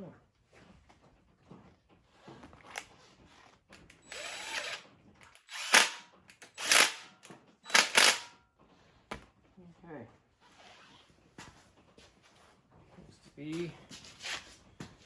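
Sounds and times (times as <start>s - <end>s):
handheld power tool bursts: 3.8s - 8.4s.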